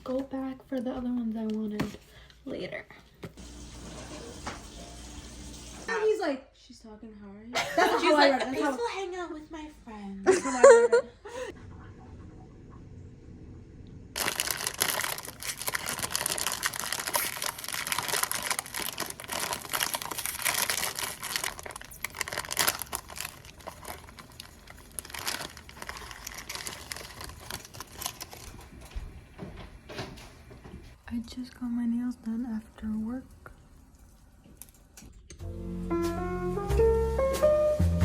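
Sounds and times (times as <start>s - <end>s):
material crinkling and rustling: 14.2s - 30.7s.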